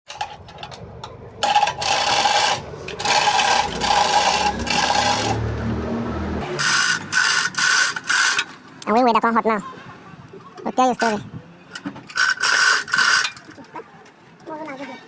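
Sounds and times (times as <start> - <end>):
impact wrench whining bursts: 1.4 - 5.8, 6.4 - 8.6.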